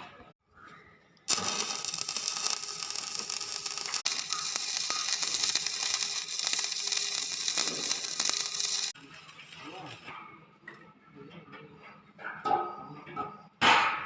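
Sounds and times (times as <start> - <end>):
arc welding crackle: 1.3 - 9.0.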